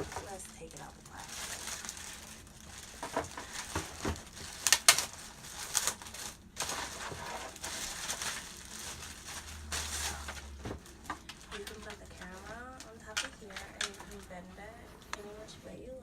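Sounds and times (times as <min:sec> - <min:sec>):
plastic wrapping crinkling: 0:00.0 - 0:15.8.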